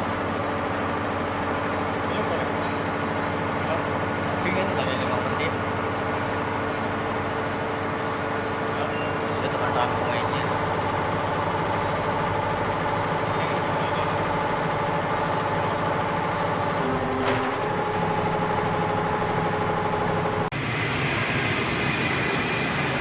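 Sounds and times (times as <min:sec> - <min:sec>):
embroidery machine humming: 0:00.0 - 0:20.5
machine click: 0:17.0 - 0:20.4.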